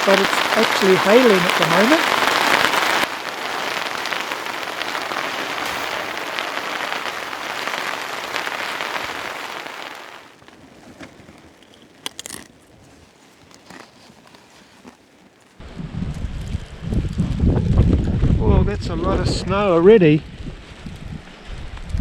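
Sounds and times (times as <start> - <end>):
hail pattering: 0.0 - 15.6.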